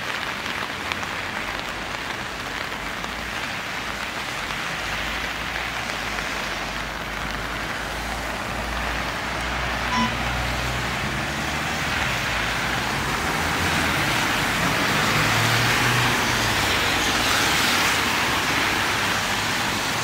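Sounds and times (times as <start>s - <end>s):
tyres hissing on wet road: 0.0s - 20.0s.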